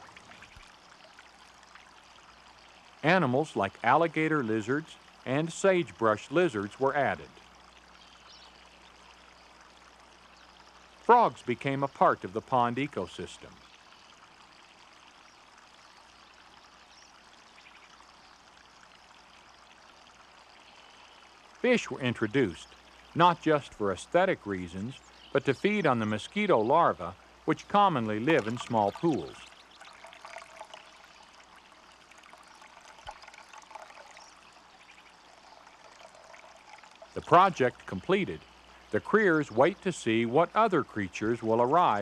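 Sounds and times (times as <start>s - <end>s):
water trickling: 0.0s - 42.0s.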